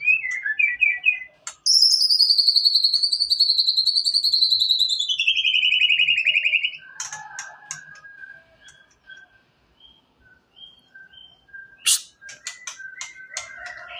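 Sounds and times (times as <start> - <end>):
bird singing rapid trill: 0.0 - 13.9
bird clicks and whistled notes: 1.4 - 5.2, 6.8 - 9.4, 10.3 - 13.9.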